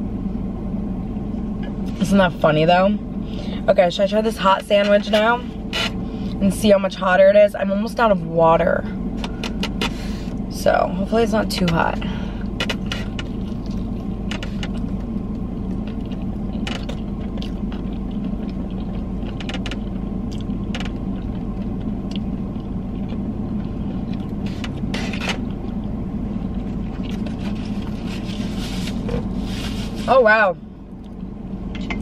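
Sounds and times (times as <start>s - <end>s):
car engine hum: 0.0s - 32.0s
chewing crispy food: 12.7s - 30.0s.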